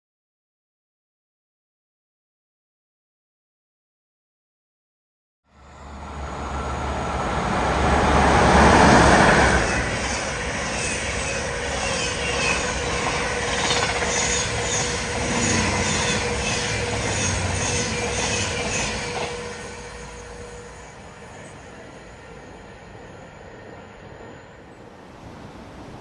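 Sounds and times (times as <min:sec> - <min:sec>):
train passing at speed: 0:05.5 - 0:26.0
wheels clacking over rail joints: 0:06.8 - 0:20.2.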